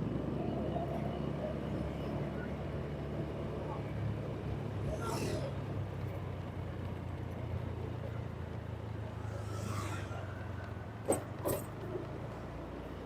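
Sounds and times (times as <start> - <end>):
street traffic: 0.0 - 13.0
vehicle passing: 8.6 - 11.8.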